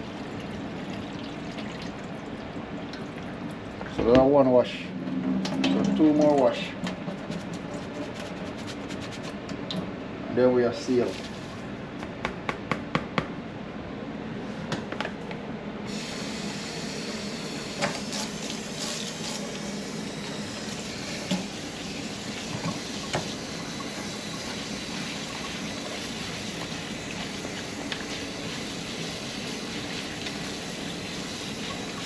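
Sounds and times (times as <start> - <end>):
tap water running into a pot: 15.9 - 32.0.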